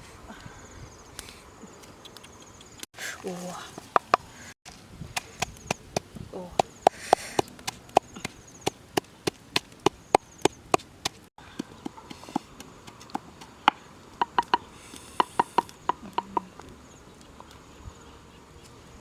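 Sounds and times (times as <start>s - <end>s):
blade chopping wood: 5.2s - 14.6s.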